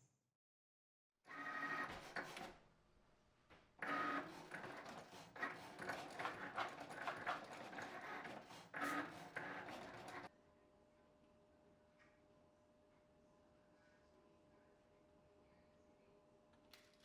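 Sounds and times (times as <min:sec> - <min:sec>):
cutting machine motors whining: 0:03.8 - 0:10.3.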